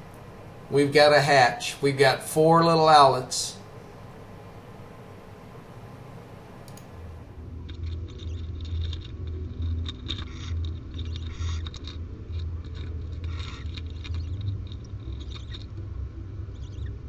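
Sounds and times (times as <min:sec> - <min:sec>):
steady low hum: 0:00.0 - 0:17.0
owl scratching and rustling: 0:07.7 - 0:15.9.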